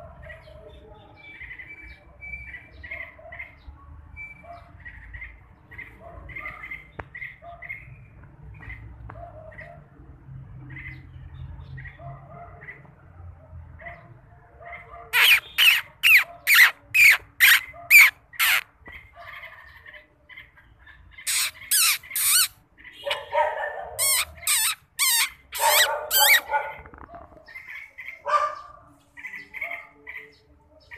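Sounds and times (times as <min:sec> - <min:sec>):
soft bird chirps: 0:14.7 - 0:23.3
bird squawking harshly: 0:15.1 - 0:20.0, 0:21.1 - 0:26.9.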